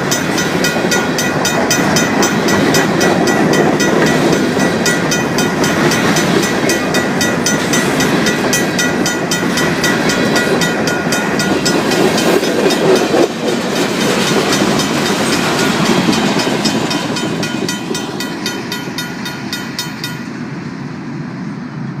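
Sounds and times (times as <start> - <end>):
freight train clickety-clack: 0.0 - 20.7
railroad crossing bell ringing: 0.0 - 20.8.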